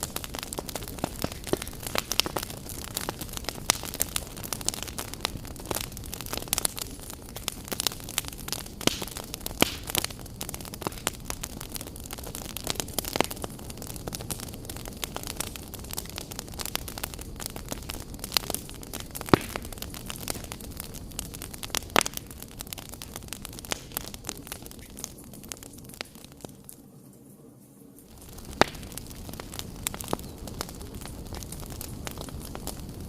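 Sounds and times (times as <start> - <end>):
wood fire crackling and popping: 0.0 - 27.3, 27.9 - 33.0.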